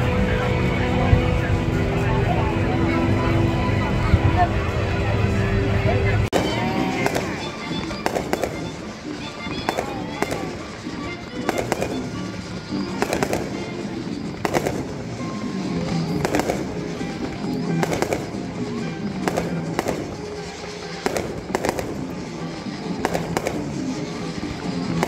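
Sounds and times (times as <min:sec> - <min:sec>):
music over stadium loudspeakers: 0:00.0 - 0:25.0
fireworks bangs with echo: 0:06.3 - 0:25.0.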